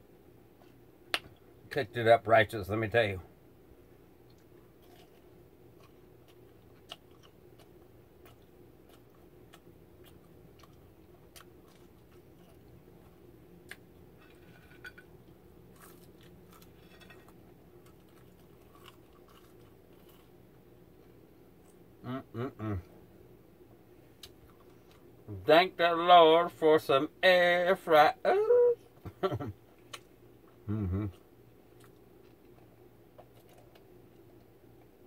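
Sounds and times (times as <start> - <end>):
low steady hum: 0.0 - 35.0
faint chewing and crunches: 0.5 - 1.4, 4.2 - 22.0, 24.1 - 25.2, 29.7 - 35.0.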